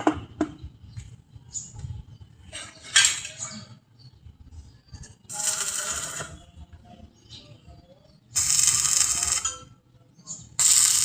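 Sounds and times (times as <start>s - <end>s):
harsh hissing burst: 8.4s - 9.4s.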